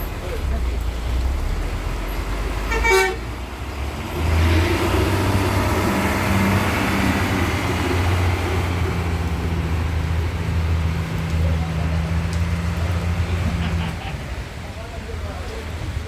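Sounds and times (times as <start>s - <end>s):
bus diesel engine droning: 0.0s - 15.0s
horn toot: 2.6s - 3.4s.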